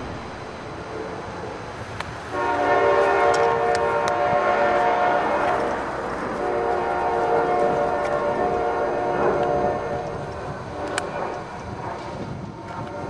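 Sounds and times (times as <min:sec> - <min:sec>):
locomotive air horn blasts: 0:02.3 - 0:11.4.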